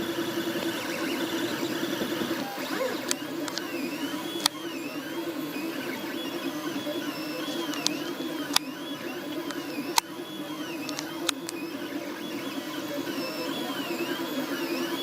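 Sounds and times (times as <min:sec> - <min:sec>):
stepper motors whining: 0:00.0 - 0:15.0
sharp clicks: 0:07.6 - 0:08.8, 0:10.8 - 0:11.6.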